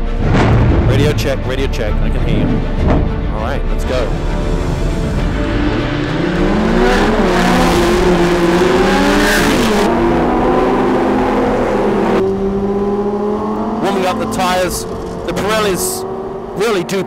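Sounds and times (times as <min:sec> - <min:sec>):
race car engine revving: 0:03.8 - 0:17.0.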